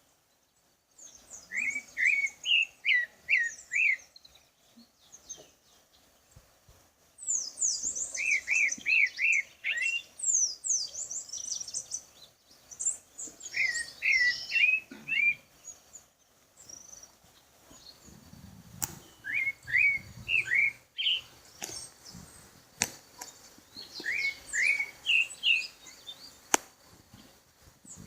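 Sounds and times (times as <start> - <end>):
songbird whistling phrases: 1.0 - 4.2, 7.3 - 12.0, 12.7 - 15.5, 19.0 - 21.8, 23.8 - 26.0
higher bird chirps: 1.0 - 6.2, 7.2 - 27.3
sharp clicks: 21.6 - 21.8, 26.5 - 26.7.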